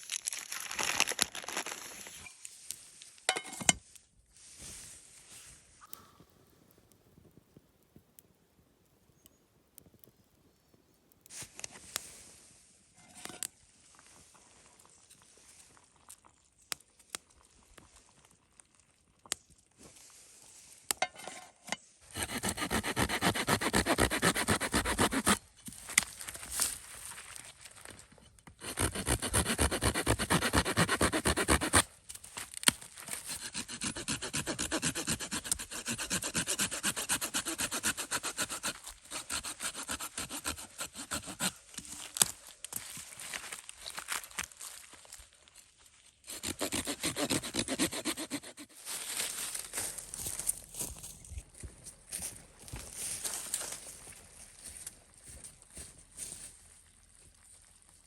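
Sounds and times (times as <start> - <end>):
hand saw cutting wood: 22.1 - 25.4, 28.6 - 31.9, 33.1 - 41.7, 46.3 - 48.8.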